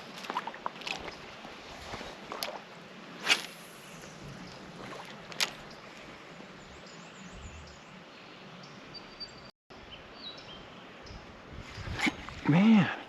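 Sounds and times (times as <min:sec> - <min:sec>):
creek hiss: 0:00.0 - 0:06.6.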